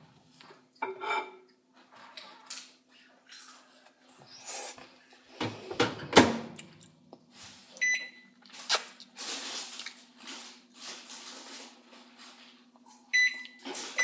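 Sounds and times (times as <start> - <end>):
electronic keypad beep: 13.2 - 13.5.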